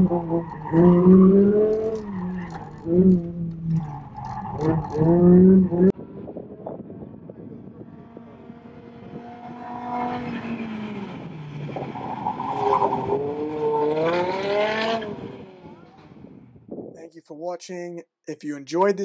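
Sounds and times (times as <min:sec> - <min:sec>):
car engine revving hard: 0:08.2 - 0:15.8.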